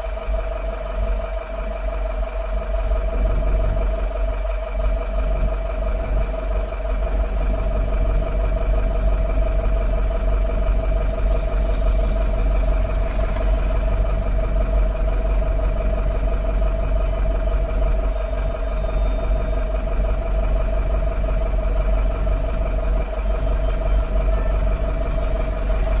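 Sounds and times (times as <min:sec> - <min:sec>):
truck engine droning with whine: 0:00.0 - 0:26.0.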